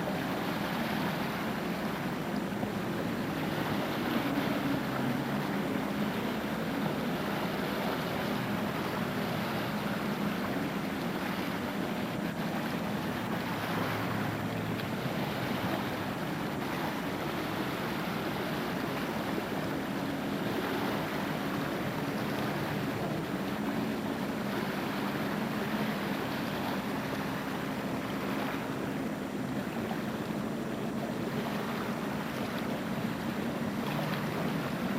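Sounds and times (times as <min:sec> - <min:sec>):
jet ski engine: 0:00.0 - 0:34.9
water rushing: 0:00.0 - 0:34.9.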